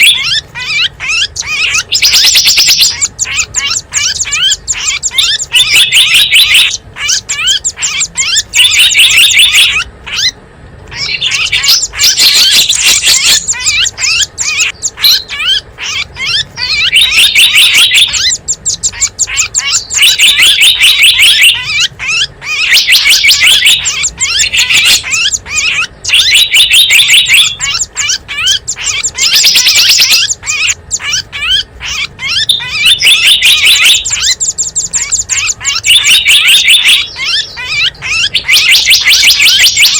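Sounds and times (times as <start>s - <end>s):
recorded songbird chirping: 0.0s - 39.9s.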